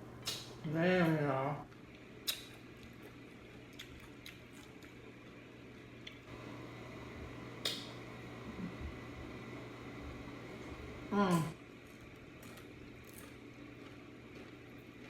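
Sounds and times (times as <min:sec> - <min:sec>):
steady low hum: 0:00.0 - 0:15.0
soft chewing: 0:01.7 - 0:06.3, 0:11.6 - 0:15.0.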